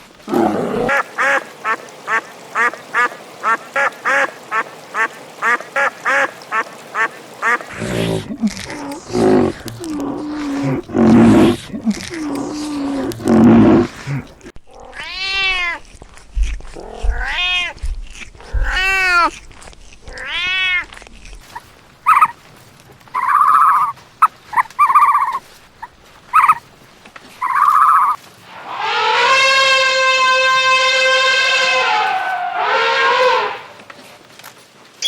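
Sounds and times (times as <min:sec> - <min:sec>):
animal cries rising and falling: 0:07.7 - 0:15.8, 0:16.8 - 0:17.8, 0:18.5 - 0:19.4, 0:28.6 - 0:33.8.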